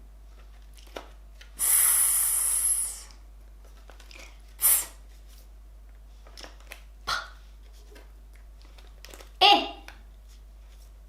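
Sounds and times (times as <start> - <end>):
woman hissing sss: 1.6 - 3.2, 4.6 - 5.0.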